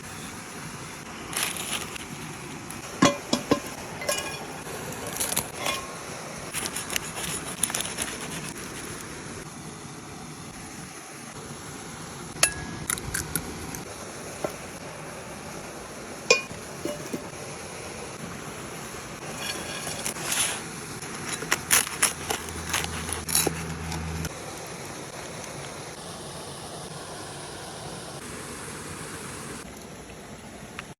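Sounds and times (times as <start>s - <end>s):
steady background hiss: 0.0s - 22.8s, 24.2s - 30.9s
cookware clinking and knocking: 3.0s - 4.7s, 5.4s - 6.0s, 16.3s - 17.3s.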